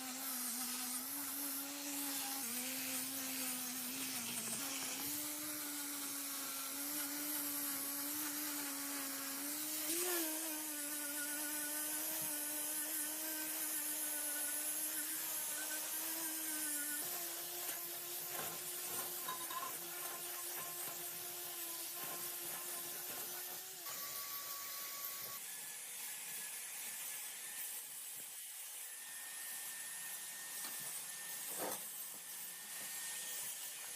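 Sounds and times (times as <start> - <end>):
hiss of tool on material: 0.0 - 19.1
power tool motor running: 0.0 - 25.9.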